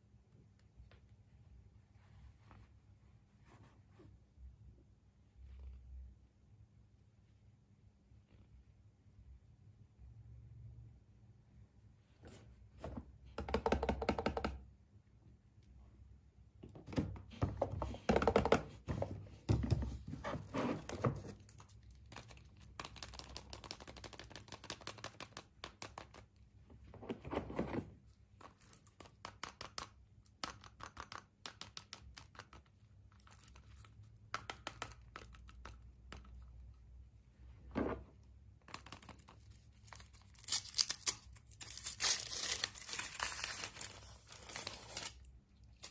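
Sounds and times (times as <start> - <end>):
packaging crinkling and tearing: 39.2 - 45.9.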